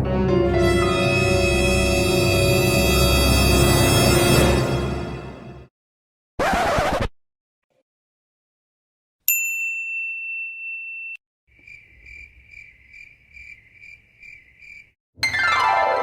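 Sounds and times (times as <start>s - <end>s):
bright ding: 9.3s - 11.2s
cricket chirping sound effect: 11.5s - 14.9s.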